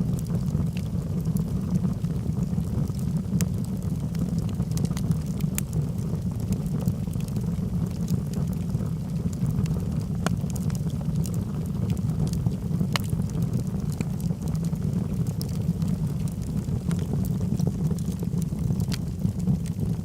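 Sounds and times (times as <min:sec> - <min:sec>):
burning wood crackling and popping: 0:00.0 - 0:20.0
fire flames rumbling: 0:00.0 - 0:20.0.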